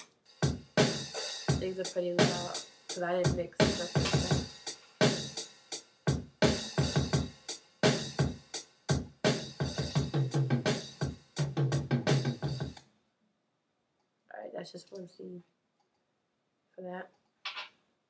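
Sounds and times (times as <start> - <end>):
drum machine beat with heavy bass: 0.0 - 12.8.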